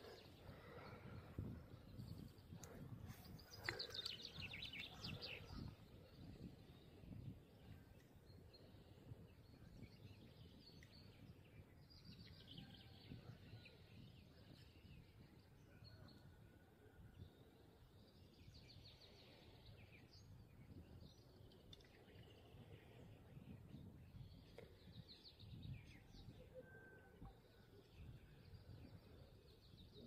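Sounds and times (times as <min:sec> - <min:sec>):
low wind rumble: 0:00.0 - 0:15.6
small bird singing: 0:01.1 - 0:15.2.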